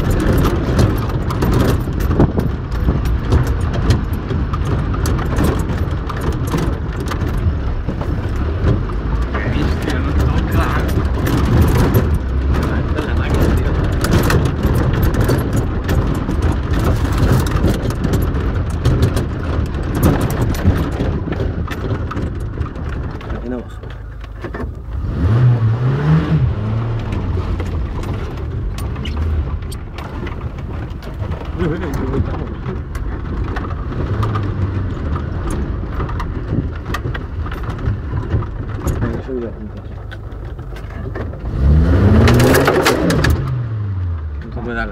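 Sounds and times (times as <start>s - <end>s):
engine and tyres rumbling: 0.0s - 44.9s
rattling and knocks from bumps: 0.0s - 44.9s.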